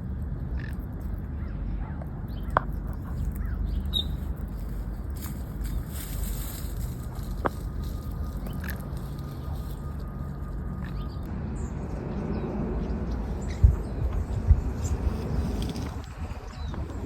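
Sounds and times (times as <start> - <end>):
wind rumble on microphone: 0.0 - 17.0
sharp low thumps: 13.4 - 15.5.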